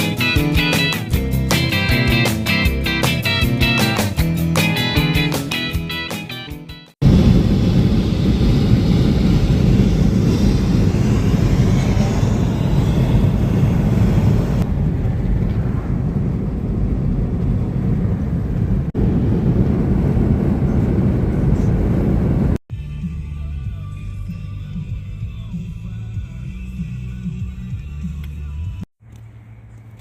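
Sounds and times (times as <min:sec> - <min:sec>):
strummed guitar notes: 0:00.0 - 0:06.8
vehicle rumble: 0:07.0 - 0:22.6, 0:25.0 - 0:30.0.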